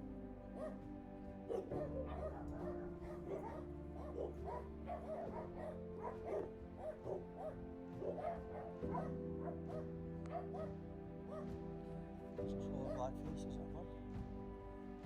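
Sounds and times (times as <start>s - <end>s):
background music with sustained notes: 0.0s - 15.0s
puppies yipping and whimpering: 1.5s - 11.5s.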